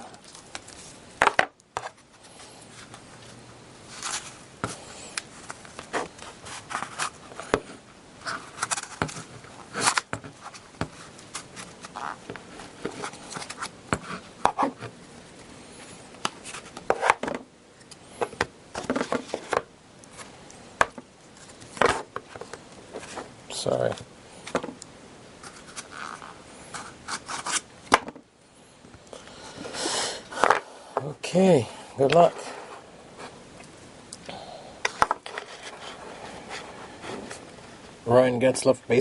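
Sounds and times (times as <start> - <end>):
hands handling packaging: 3.9 - 24.8.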